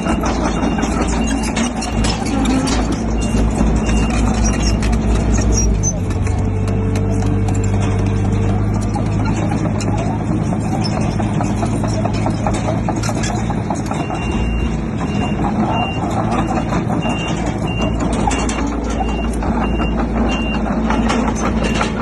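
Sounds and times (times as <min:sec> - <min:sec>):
reversing alarm beeping: 0:00.0 - 0:05.0, 0:13.8 - 0:22.0
diesel machinery running: 0:00.0 - 0:22.0
metallic clanking: 0:00.0 - 0:22.0.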